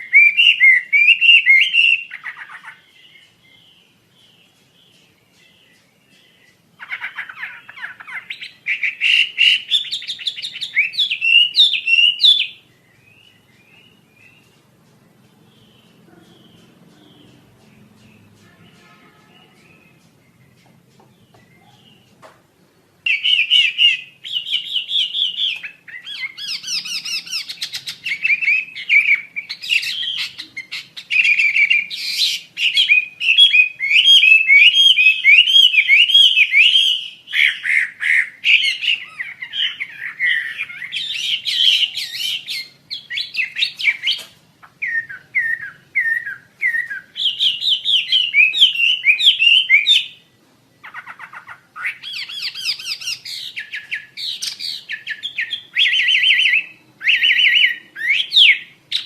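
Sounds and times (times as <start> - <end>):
bird whistling and chattering: 0.0 - 3.3, 6.8 - 14.4, 23.1 - 50.2, 50.8 - 59.0.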